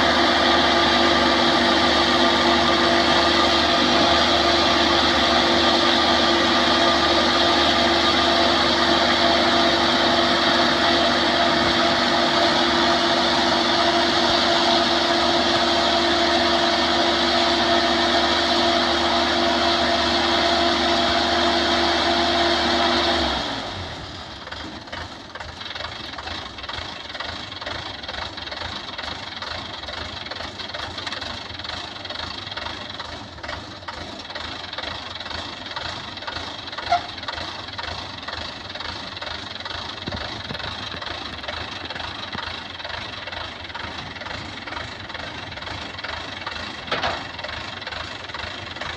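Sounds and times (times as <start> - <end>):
combine harvester engine hum: 0.0 - 48.9
rattling engine: 0.0 - 48.9.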